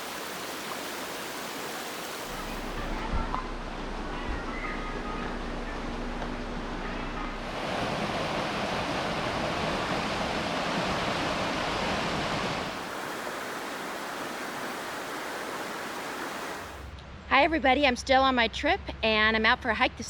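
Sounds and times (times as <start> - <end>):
fast-flowing water rushing: 0.0 - 3.0, 7.4 - 16.9.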